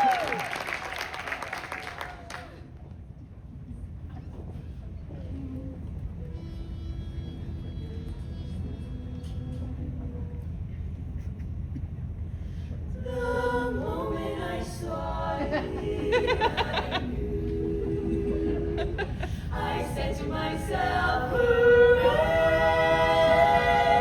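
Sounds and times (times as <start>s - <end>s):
vocal group singing in harmony: 13.0s - 24.0s.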